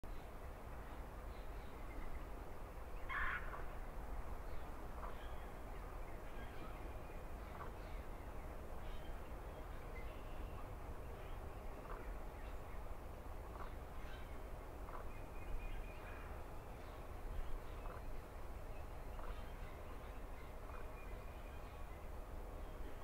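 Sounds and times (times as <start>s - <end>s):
low outdoor rumble: 0.0s - 23.0s
faint bird calls: 3.0s - 3.8s, 13.5s - 22.0s.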